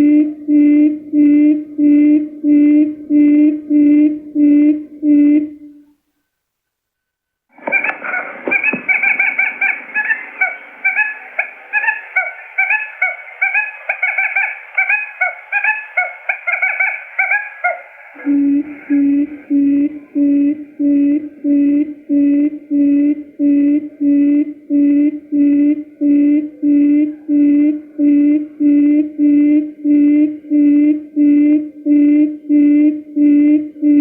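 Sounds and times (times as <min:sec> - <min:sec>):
quail chirping calls: 0:07.6 - 0:20.2
low hoots: 0:07.6 - 0:34.0.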